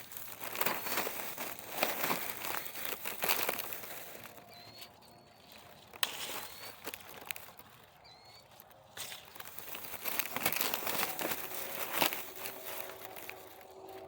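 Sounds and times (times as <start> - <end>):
bag crinkling: 0.0 - 14.0
leaves and branches rustling: 0.0 - 14.0.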